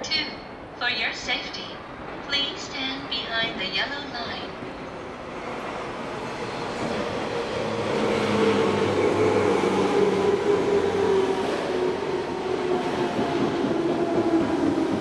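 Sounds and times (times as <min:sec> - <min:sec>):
train wheels rumbling on rail: 0:04.6 - 0:15.0.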